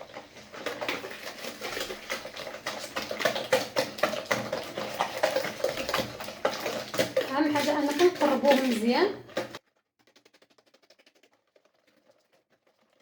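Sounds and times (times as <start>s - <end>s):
whisk clicking against bowl: 0.0s - 9.6s.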